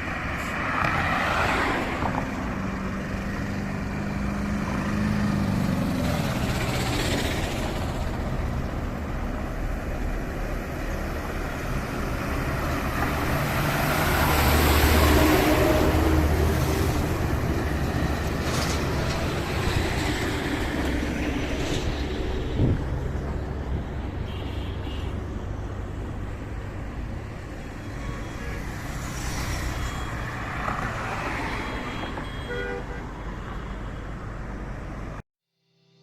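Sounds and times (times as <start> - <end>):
road traffic rumbling: 0.0 - 35.2
car horn toots: 31.9 - 33.1.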